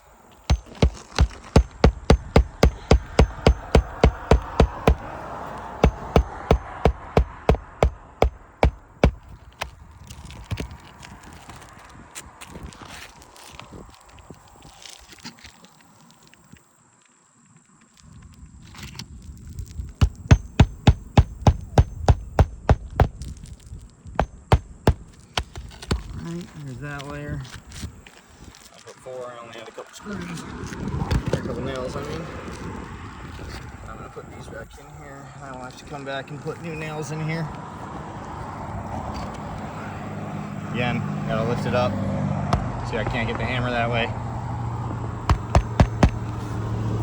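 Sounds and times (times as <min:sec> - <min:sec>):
hammer driving nails into shingles: 0:00.4 - 0:05.1, 0:05.8 - 0:09.7, 0:20.0 - 0:23.5, 0:24.2 - 0:26.2, 0:45.3 - 0:46.3
steady low rumble: 0:00.5 - 0:09.9, 0:19.7 - 0:23.6.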